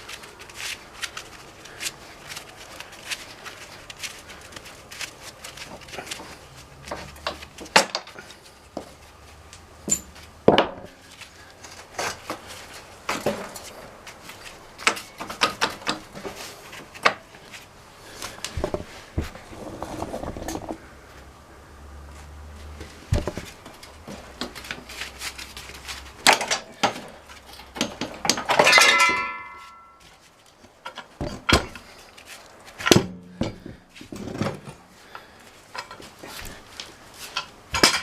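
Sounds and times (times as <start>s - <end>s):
metal tools clanking: 9.8s - 10.3s, 26.3s - 30.1s, 35.7s - 36.1s, 37.3s - 38.0s.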